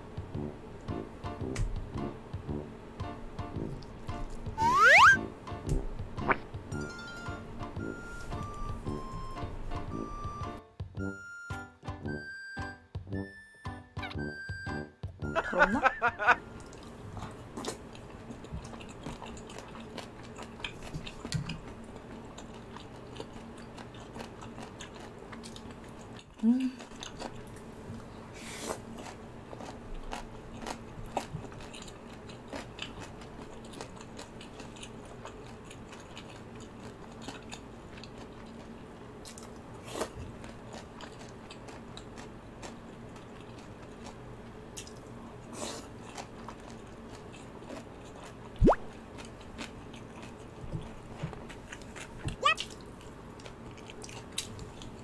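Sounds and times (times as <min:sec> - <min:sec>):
chewing with wet mouth clicks: 0:16.6 - 0:27.7, 0:29.0 - 0:39.6, 0:40.3 - 0:44.2, 0:44.8 - 0:45.1, 0:46.0 - 0:55.0.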